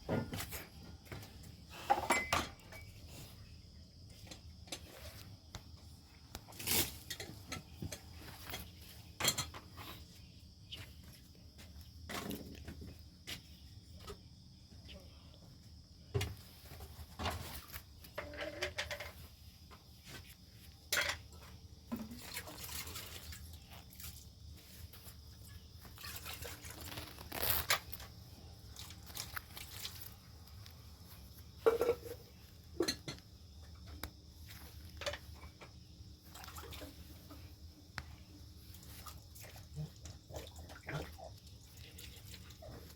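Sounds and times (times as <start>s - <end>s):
irregular knocks and clinks: 1.8s - 3.0s.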